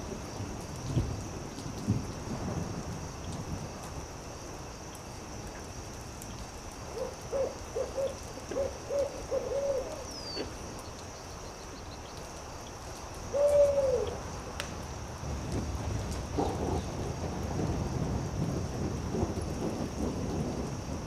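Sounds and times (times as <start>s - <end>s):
campfire crackling: 0.0s - 21.0s
owl hooting: 6.9s - 10.5s, 13.3s - 14.2s.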